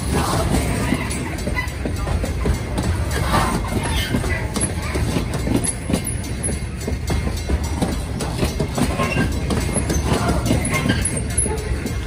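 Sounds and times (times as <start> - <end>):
train clicks and clanks: 0.0 - 12.0
train wheels rumbling on rail: 0.0 - 12.0.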